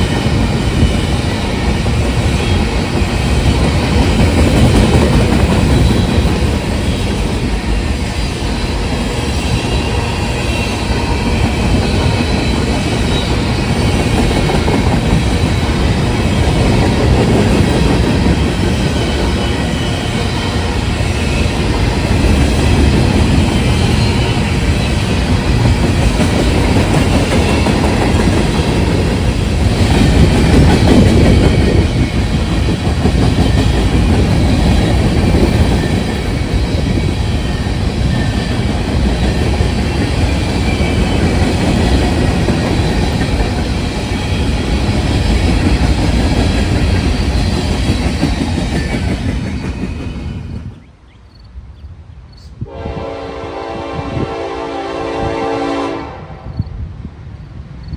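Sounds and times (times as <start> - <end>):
train wheels rumbling on rails: 0.0 - 51.5
locomotive horn chord: 52.6 - 56.5.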